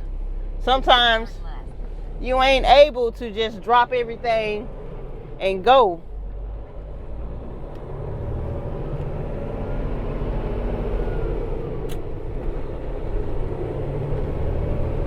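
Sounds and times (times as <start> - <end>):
diesel truck engine running: 0.0 - 15.0
road rumble: 0.0 - 15.0.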